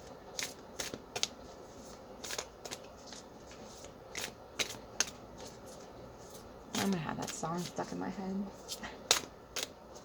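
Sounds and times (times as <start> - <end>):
cards being shuffled: 0.3 - 7.8.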